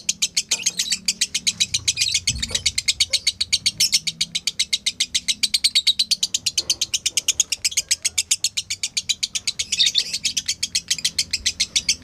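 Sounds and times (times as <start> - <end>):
lovebird chattering chirps: 0.0 - 12.0.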